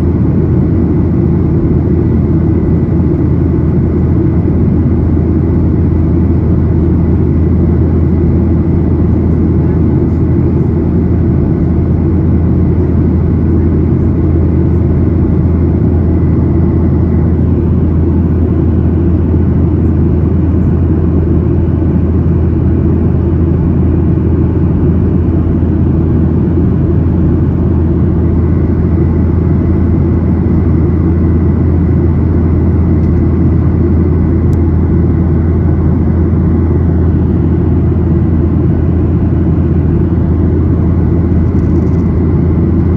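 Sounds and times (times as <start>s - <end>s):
low drone of jet engines: 0.0s - 42.9s
faint thin whine: 40.2s - 42.9s.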